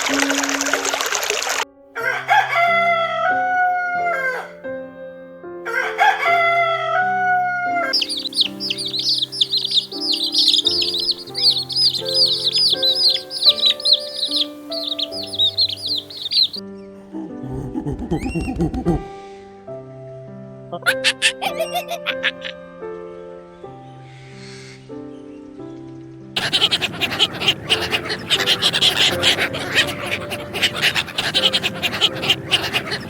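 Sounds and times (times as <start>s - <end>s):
running water: 0.0s - 1.6s
background music: 0.0s - 33.0s
rooster crowing: 2.0s - 4.6s, 5.7s - 16.6s, 26.4s - 33.0s
small birds chirping: 7.9s - 19.1s, 20.8s - 22.6s, 26.4s - 33.0s.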